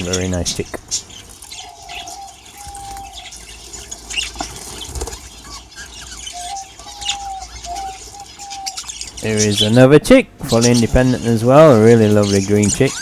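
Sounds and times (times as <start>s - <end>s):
budgerigars chirping and chattering: 0.0s - 13.0s
wing flaps: 4.1s - 5.4s.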